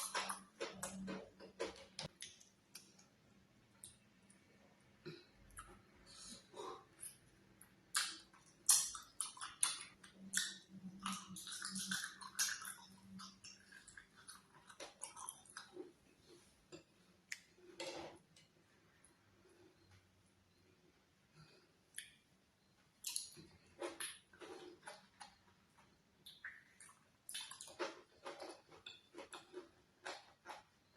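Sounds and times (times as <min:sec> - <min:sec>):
wet chewing and mouth smacks: 0:07.0 - 0:16.0, 0:21.9 - 0:22.2, 0:23.0 - 0:30.7.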